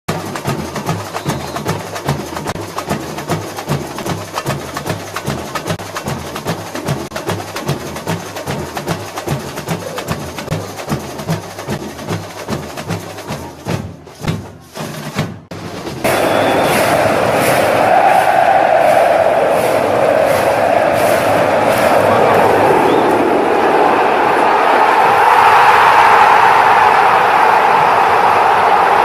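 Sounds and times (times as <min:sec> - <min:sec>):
low drum beats: 0:00.1 - 0:25.0
loud noisy din: 0:16.0 - 0:29.0.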